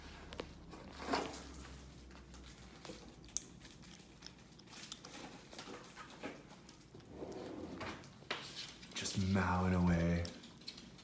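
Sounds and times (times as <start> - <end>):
cat chewing food: 0.3 - 11.0.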